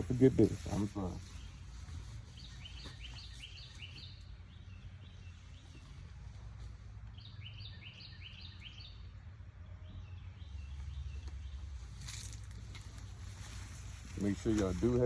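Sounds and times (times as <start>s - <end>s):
low outdoor rumble: 0.0s - 15.0s
songbird chirping: 0.0s - 15.0s.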